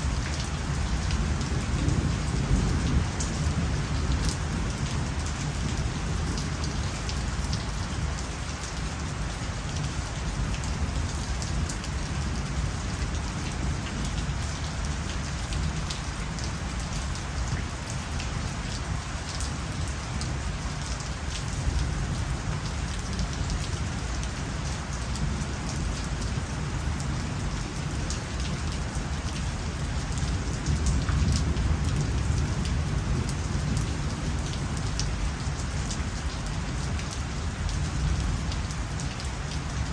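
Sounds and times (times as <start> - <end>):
rain patter: 0.0 - 39.9.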